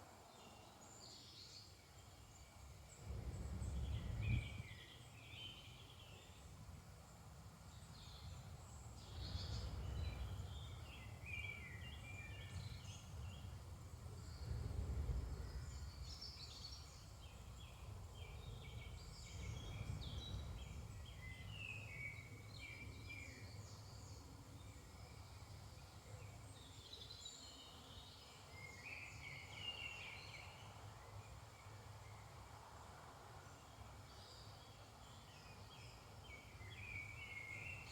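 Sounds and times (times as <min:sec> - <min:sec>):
songbirds singing and chirping: 0:00.3 - 0:32.4, 0:33.6 - 0:37.9
faint low rumble: 0:02.9 - 0:05.0, 0:07.8 - 0:23.2.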